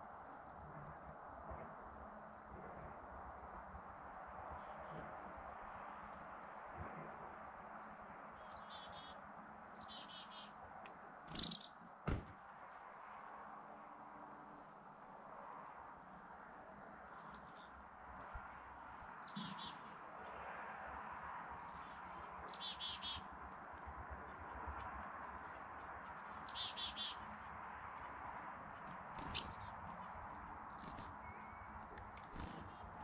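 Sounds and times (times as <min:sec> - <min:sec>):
small birds chirping: 0:00.0 - 0:00.7, 0:07.8 - 0:10.6, 0:11.3 - 0:12.6, 0:15.2 - 0:33.0.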